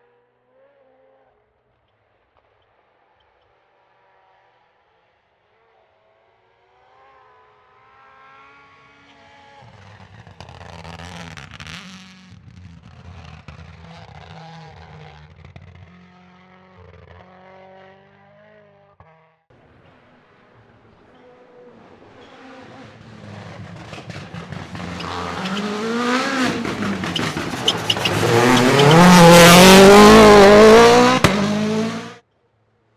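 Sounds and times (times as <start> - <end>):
rally car engine passing: 21.8 - 32.2.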